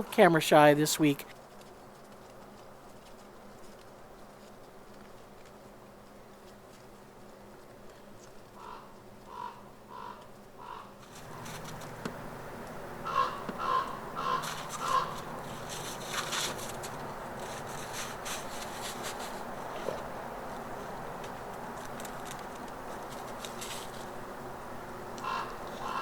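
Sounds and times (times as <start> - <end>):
crow cawing: 8.6 - 11.5, 13.0 - 15.3, 25.2 - 26.0.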